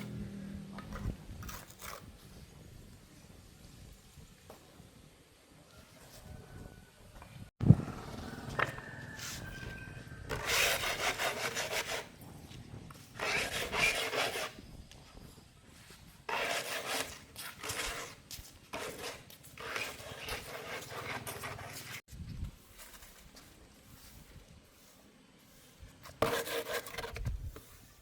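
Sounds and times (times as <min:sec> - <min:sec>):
hand tool rasping on hard surface: 0:10.3 - 0:12.1, 0:13.1 - 0:14.6, 0:16.3 - 0:22.0.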